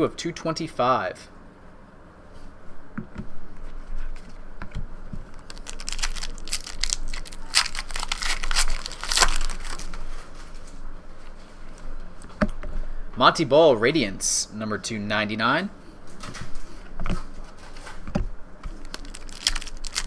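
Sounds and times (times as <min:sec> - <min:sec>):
packaging crinkling: 0:05.2 - 0:10.3, 0:18.7 - 0:20.0.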